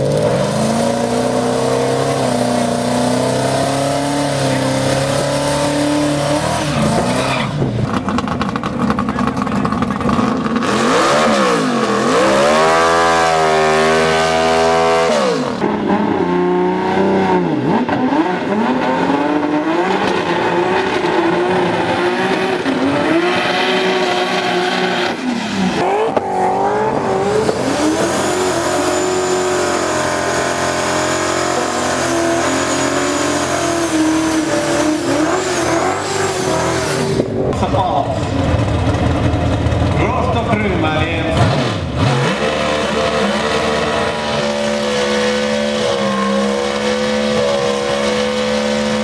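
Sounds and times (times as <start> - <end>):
car engines revving hard: 0.0 - 49.0.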